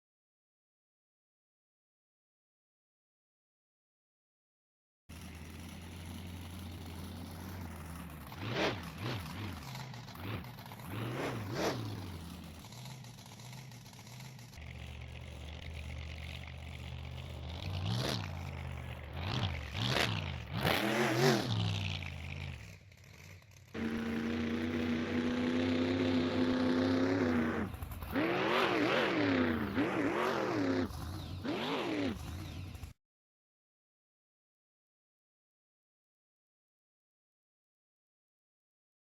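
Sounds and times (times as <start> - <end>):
monster truck engine revving: 5.1 - 33.0.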